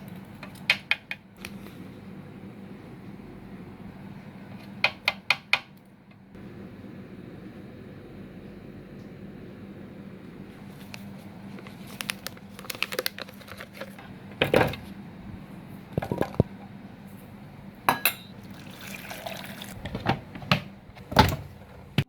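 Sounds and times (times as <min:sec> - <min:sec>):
steady low hum: 0:00.0 - 0:18.6.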